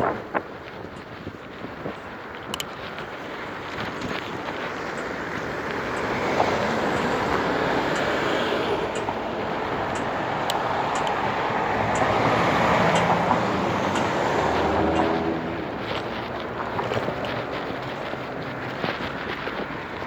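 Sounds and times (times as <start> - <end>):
road traffic: 0.0 - 20.0
wind on microphone: 0.0 - 20.0
vehicle engine passing: 4.6 - 19.7.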